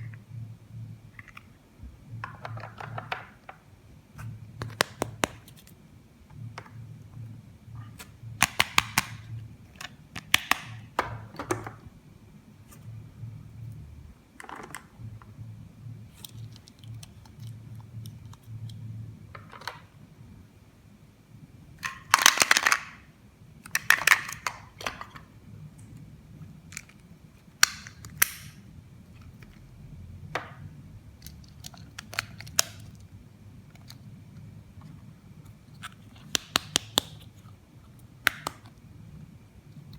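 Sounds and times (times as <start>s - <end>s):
plastic pieces clicking: 21.8s - 23.0s.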